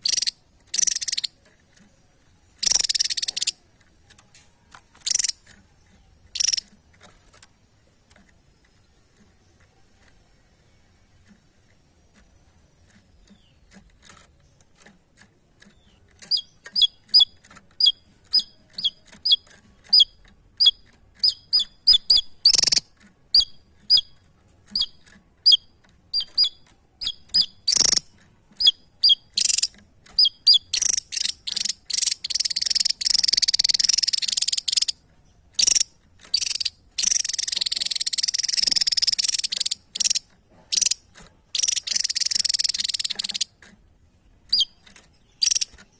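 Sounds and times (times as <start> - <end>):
songbird chirping and chattering: 0.0 - 45.9.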